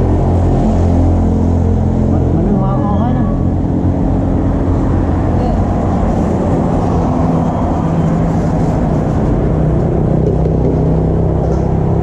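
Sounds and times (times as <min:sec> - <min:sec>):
street noise: 0:00.0 - 0:12.0.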